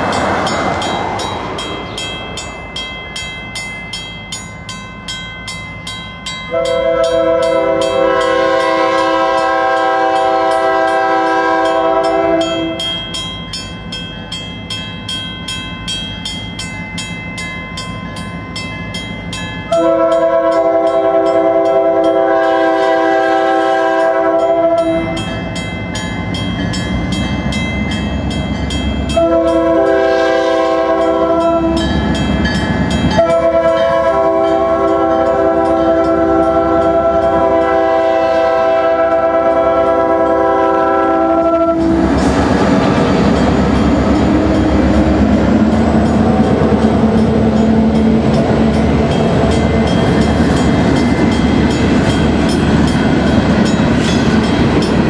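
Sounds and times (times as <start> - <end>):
diesel locomotives passing: 0.0 - 55.0
multi-note air horn: 6.5 - 12.8, 19.7 - 25.1, 29.1 - 31.8, 33.2 - 42.1.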